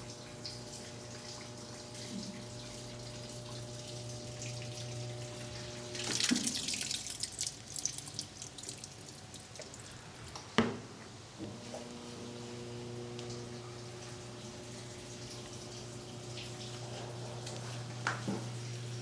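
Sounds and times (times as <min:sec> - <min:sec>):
washing machine electrical hum: 0:00.0 - 0:19.0
water splashing: 0:02.3 - 0:10.0.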